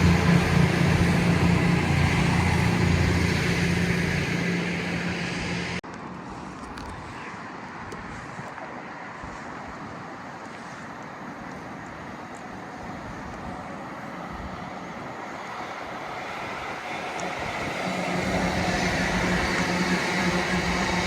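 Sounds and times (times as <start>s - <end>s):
background rumble: 0.0s - 5.8s
steady low hum: 0.0s - 5.8s
train approaching: 0.0s - 5.8s, 13.0s - 21.0s.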